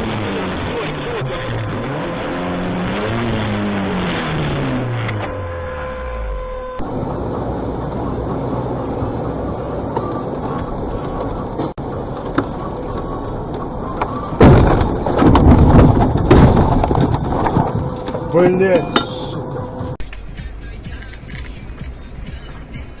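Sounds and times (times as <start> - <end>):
loud rough noise: 0.0 - 9.8
car road and engine noise: 0.0 - 23.0.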